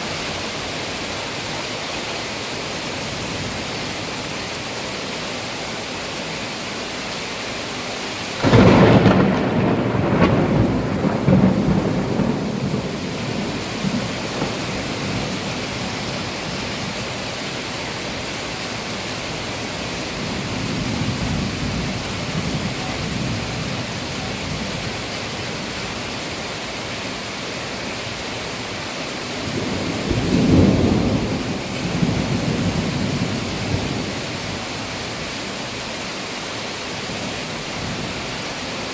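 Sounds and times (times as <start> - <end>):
steady rain: 0.0 - 38.9
thunder: 8.4 - 15.9, 29.4 - 34.2.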